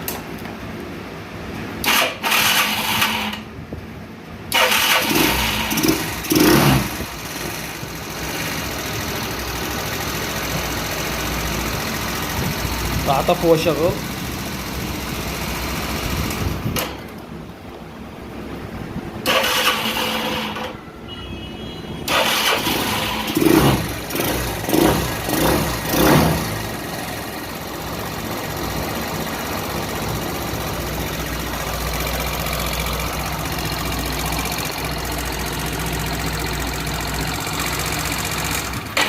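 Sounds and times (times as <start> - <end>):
motorcycle engine revving and idling: 1.6 - 3.6, 4.5 - 17.2, 18.6 - 20.8, 22.0 - 39.0
motorcycle engine cranking: 1.8 - 3.5, 4.5 - 9.3, 19.2 - 20.8, 22.1 - 27.3, 28.0 - 39.0.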